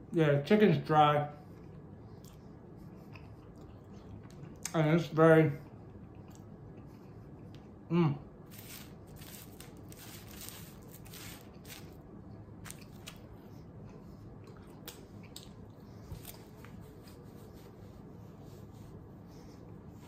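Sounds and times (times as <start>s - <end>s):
wet chewing sounds: 1.5s - 4.8s, 5.6s - 7.8s, 12.6s - 17.1s
crisp crunches: 8.5s - 12.0s, 12.6s - 13.2s.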